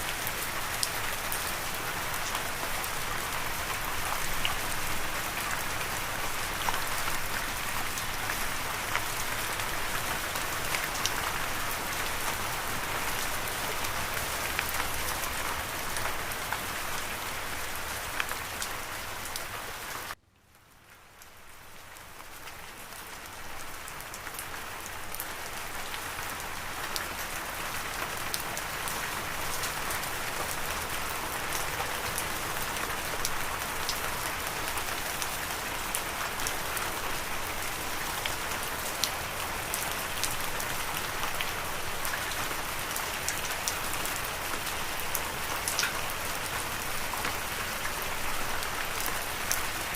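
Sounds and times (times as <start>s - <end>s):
steady rain falling: 0.0s - 49.9s.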